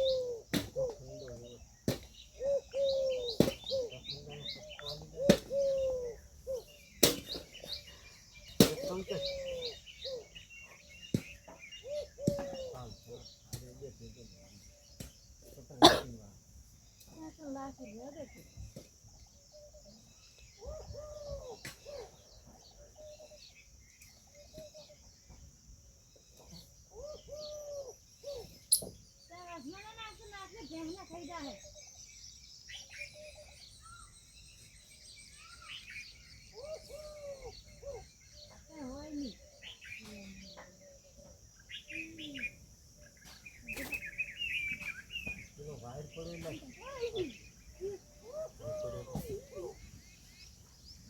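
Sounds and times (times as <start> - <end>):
peafowl calling: 0.0 - 1.5, 2.2 - 13.3, 35.3 - 45.6, 46.2 - 50.4
insects buzzing: 0.0 - 51.0
small birds chirping: 0.0 - 51.0.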